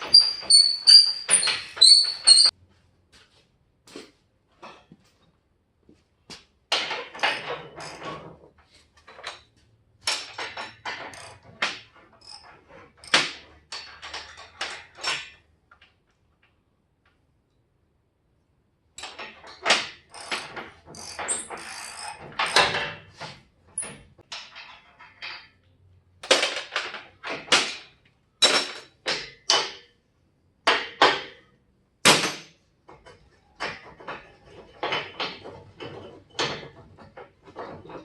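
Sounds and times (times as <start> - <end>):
clanks and knocks on metal: 4.6 - 5.2, 6.7 - 16.1, 19.0 - 25.6, 26.2 - 30.0, 30.6 - 38.0
metal rattling and scraping: 32.9 - 38.0.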